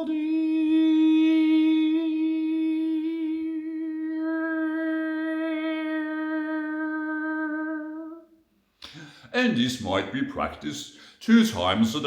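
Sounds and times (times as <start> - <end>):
person humming a long note: 0.0 - 8.3.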